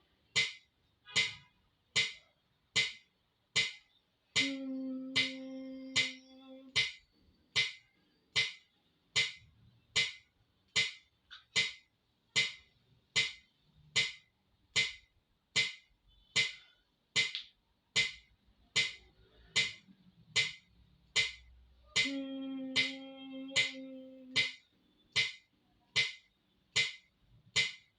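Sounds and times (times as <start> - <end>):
metronome clicking: 4.4 - 7.0, 22.0 - 24.6.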